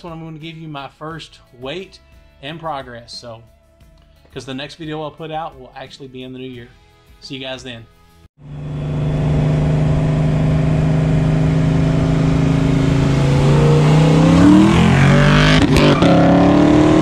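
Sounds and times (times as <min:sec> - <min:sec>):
car engine accelerating: 0:08.4 - 0:17.0.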